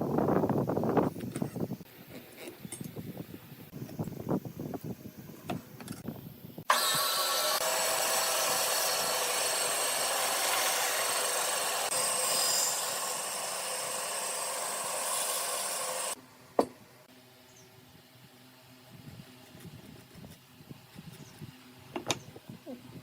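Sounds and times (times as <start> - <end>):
power tool cutting wood: 6.7 - 16.2.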